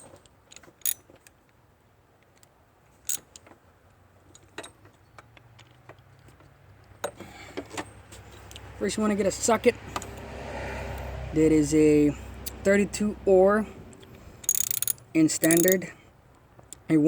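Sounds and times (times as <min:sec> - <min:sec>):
metallic clinks of hand tools: 0:14.4 - 0:15.8.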